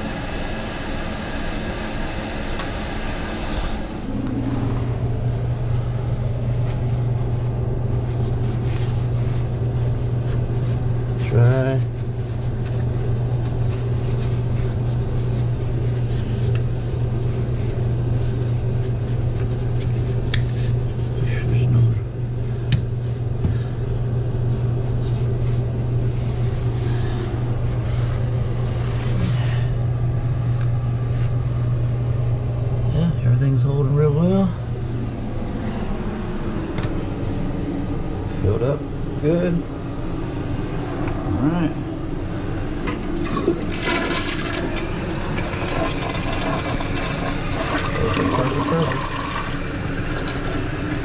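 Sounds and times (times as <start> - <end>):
low hum: 3.3 - 47.6
toilet refilling: 42.8 - 51.0.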